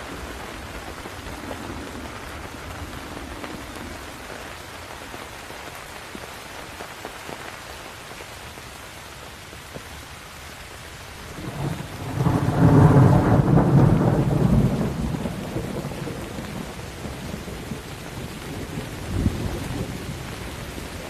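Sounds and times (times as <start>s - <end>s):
steady rain falling: 0.0s - 21.0s
thunder rumbling: 11.3s - 21.0s.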